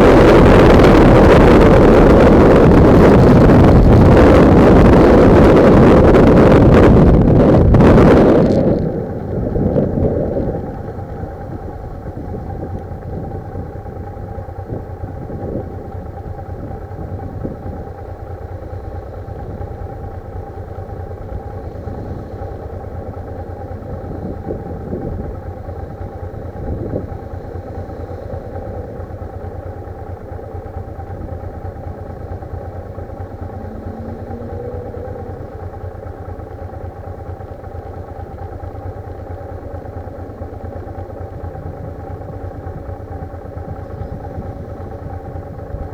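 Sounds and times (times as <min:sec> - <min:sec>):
wind noise on microphone: 0:00.0 - 0:35.9, 0:41.2 - 0:45.9
motorcycle engine running: 0:00.0 - 0:45.9.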